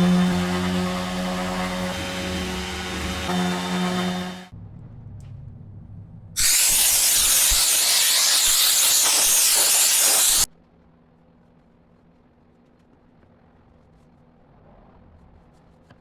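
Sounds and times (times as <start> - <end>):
pressurized spray hissing: 6.4 - 10.5.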